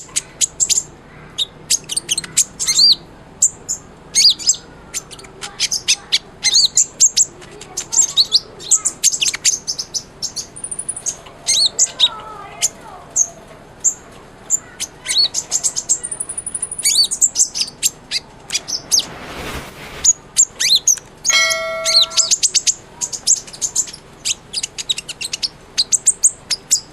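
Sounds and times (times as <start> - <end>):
thin high whistles: 17.6 - 20.4, 21.3 - 22.5
short steady tone: 18.5 - 20.2, 21.3 - 22.4
bird chirping and trilling: 21.3 - 22.4.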